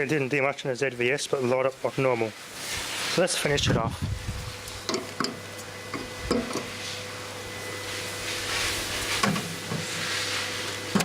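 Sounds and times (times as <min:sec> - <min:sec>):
hiss: 0:02.0 - 0:03.5, 0:07.8 - 0:11.0
microwave oven humming: 0:03.9 - 0:11.0.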